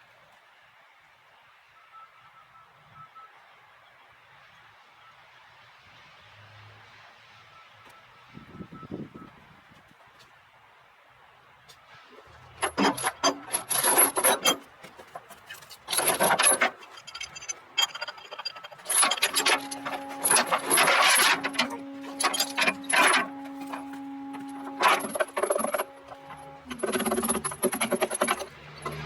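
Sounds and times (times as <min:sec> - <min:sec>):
chains rattling and scraping: 0:12.3 - 0:29.0
steady hum: 0:15.9 - 0:29.0.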